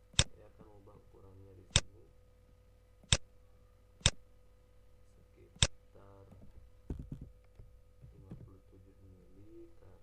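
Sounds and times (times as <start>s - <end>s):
faint steady hum: 0.0s - 10.0s
computer mouse clicks: 3.0s - 3.3s.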